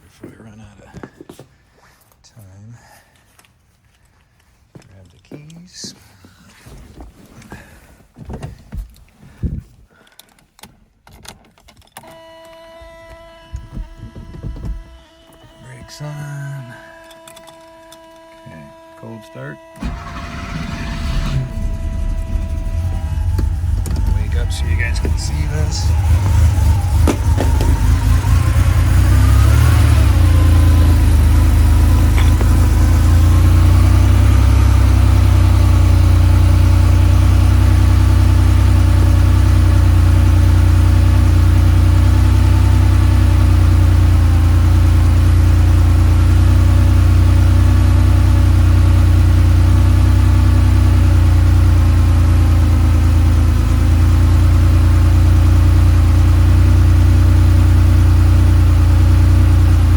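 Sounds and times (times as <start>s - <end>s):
car engine cold start: 12.0s - 59.9s.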